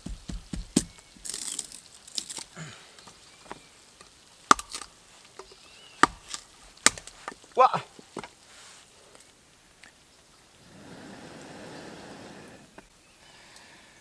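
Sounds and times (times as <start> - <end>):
short rustling hiss: 0.7 - 9.4.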